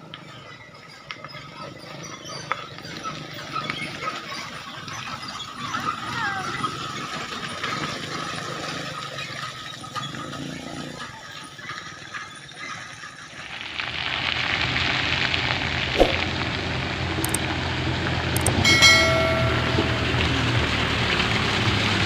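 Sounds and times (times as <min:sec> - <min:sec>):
diesel truck engine under load: 0:02.8 - 0:22.0
steady held tone: 0:18.4 - 0:21.4.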